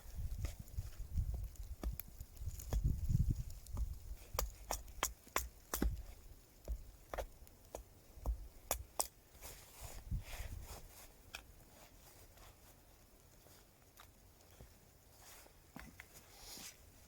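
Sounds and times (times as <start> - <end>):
wood fire crackling: 0.0 - 17.0
soft hiss: 9.0 - 17.0.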